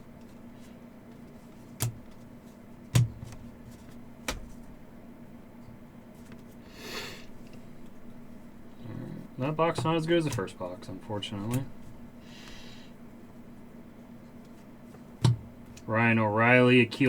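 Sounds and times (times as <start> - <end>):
faint steady hum: 0.0 - 17.0
cards tapped on a table: 3.0 - 4.7.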